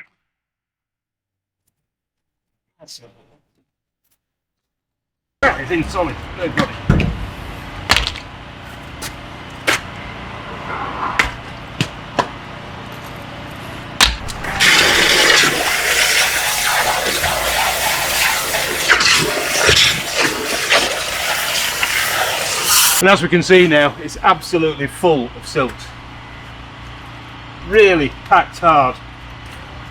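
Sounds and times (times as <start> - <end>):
pressure washer spraying water: 14.3 - 23.0.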